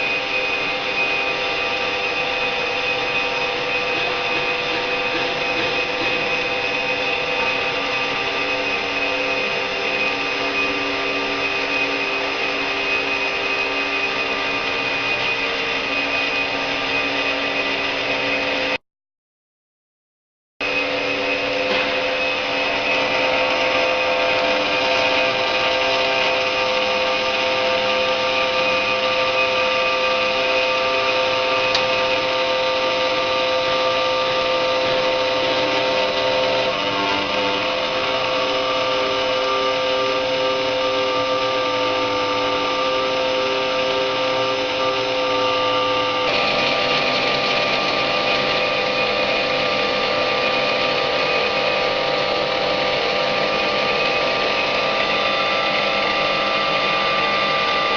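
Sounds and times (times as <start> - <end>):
router-engraver machine whine: 0.0 - 18.8, 20.6 - 57.9.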